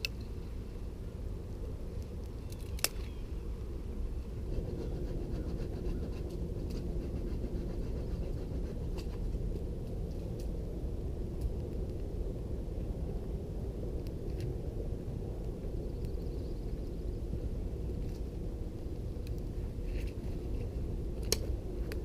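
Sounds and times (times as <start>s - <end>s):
steady low rumble: 0.0s - 22.0s
campfire crackling pops: 9.0s - 13.4s, 21.1s - 22.0s.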